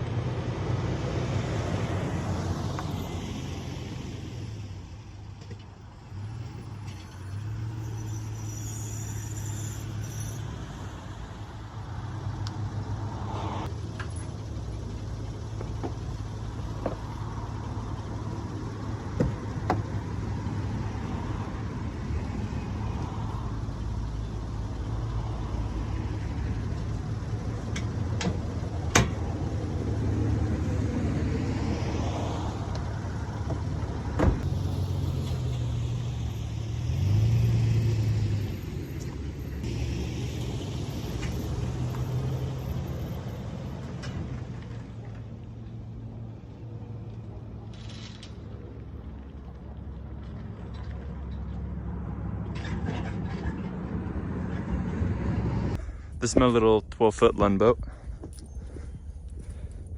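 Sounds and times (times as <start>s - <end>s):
vehicle engine humming: 0.0s - 59.9s.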